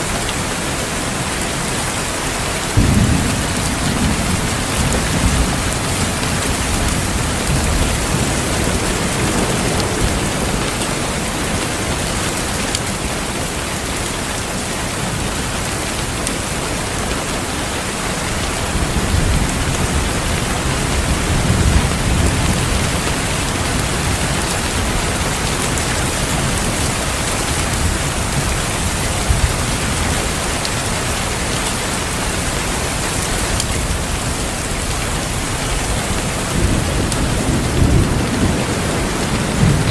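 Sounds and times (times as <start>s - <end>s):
dense rain: 0.0s - 39.9s
thunder rumbling: 2.6s - 13.4s, 31.2s - 39.9s.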